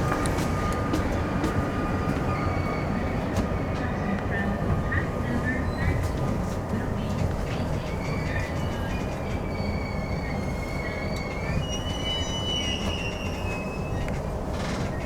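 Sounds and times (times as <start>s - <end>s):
electric train rumbling on rails: 0.0s - 15.0s
train wheels squealing: 2.0s - 6.2s, 7.6s - 15.0s.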